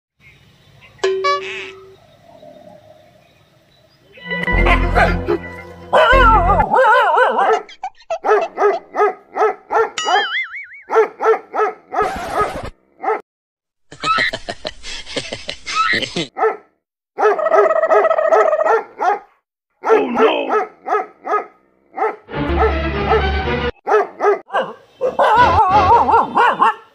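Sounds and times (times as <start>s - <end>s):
dog barking: 4.7s - 5.2s, 5.9s - 10.0s, 10.9s - 13.2s, 16.3s - 26.9s.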